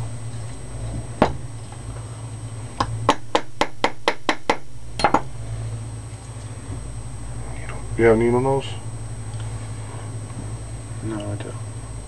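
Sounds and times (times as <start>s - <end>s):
hammer tapping metal punch: 2.8s - 5.3s.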